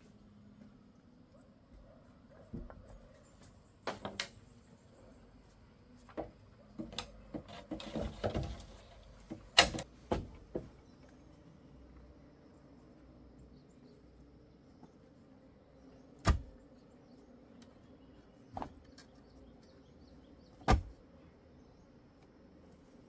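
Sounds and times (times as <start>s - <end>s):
scraping rustle: 7.4s - 9.5s.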